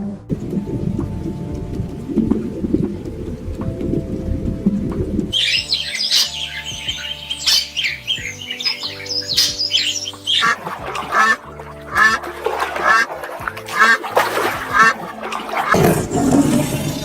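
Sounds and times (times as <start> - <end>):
background music: 0.0 - 17.0
lower bird call: 5.3 - 11.4
birds squawking and chirping: 5.3 - 17.0.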